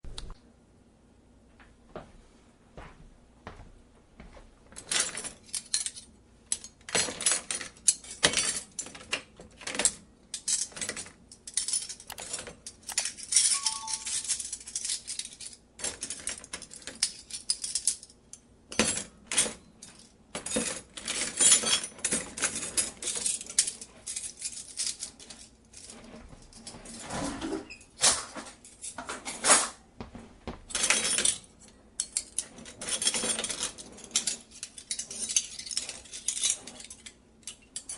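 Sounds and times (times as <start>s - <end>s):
rustling and scraping: 19.9s - 37.9s.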